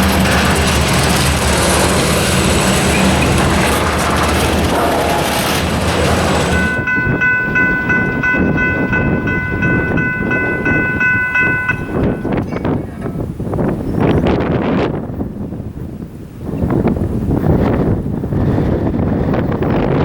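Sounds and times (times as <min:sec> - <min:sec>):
locomotive air horn blast: 0:00.0 - 0:06.8
train rumble: 0:00.0 - 0:20.0.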